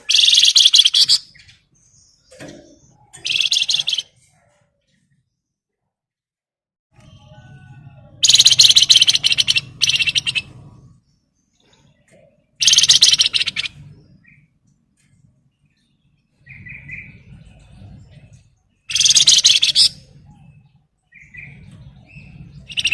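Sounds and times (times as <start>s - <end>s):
songbird rattling trills: 0.0s - 1.5s, 3.2s - 4.1s, 8.2s - 10.6s, 12.6s - 14.0s, 18.8s - 20.1s, 21.1s - 22.9s
faint low hum: 7.0s - 22.9s.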